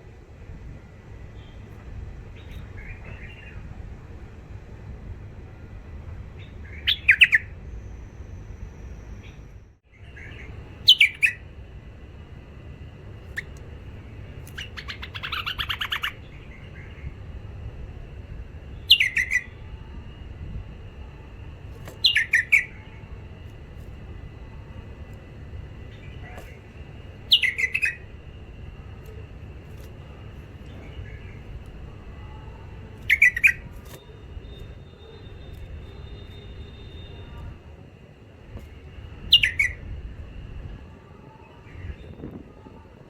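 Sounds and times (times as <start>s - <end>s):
bird chattering: 10.2s - 11.4s, 13.2s - 13.6s, 14.3s - 16.8s, 18.9s - 19.5s, 22.0s - 23.0s, 25.9s - 28.1s, 32.5s - 34.2s, 39.3s - 39.8s
bird singing whistled phrases: 10.8s - 11.4s, 18.8s - 19.6s, 22.0s - 22.8s, 27.3s - 28.0s, 33.0s - 33.6s, 39.3s - 39.8s.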